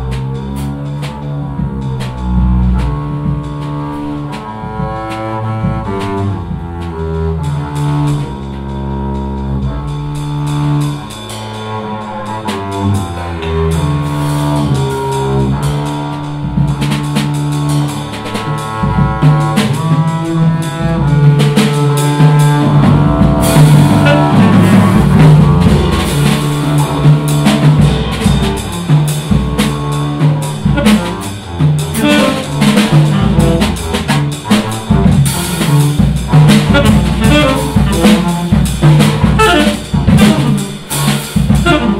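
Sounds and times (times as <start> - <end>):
double bass: 0.0 - 41.9
drum kit: 0.0 - 41.9.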